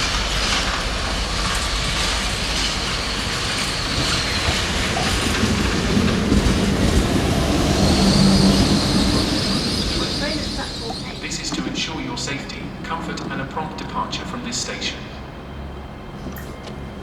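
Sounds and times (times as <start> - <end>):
train wheels clacking on rails: 0.0 - 15.4
faint high wheel squeal: 2.4 - 6.2, 7.6 - 12.6.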